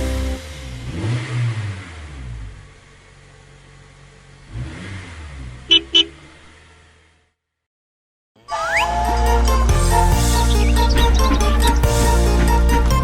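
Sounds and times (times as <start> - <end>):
bus engine revving: 0.0 - 2.9, 4.4 - 7.4, 8.9 - 13.0.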